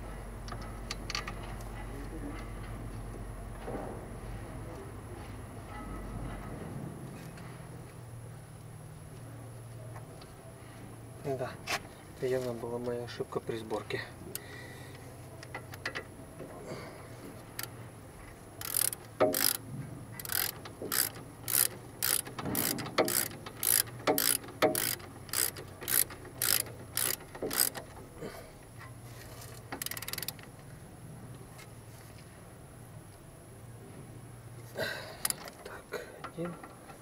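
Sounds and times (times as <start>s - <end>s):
ratchet wrench clicking: 18.6s - 19.6s, 20.2s - 28.0s, 29.4s - 30.4s, 35.2s - 35.6s.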